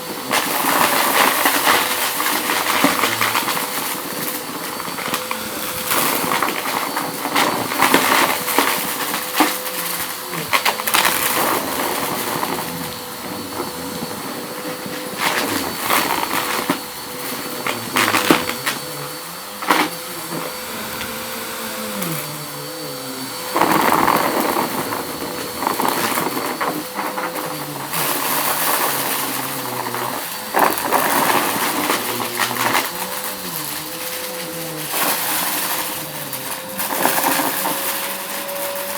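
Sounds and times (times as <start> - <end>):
debris crackling up vacuum hose: 0.0 - 38.9
vacuum cleaner motor whine: 0.0 - 38.9.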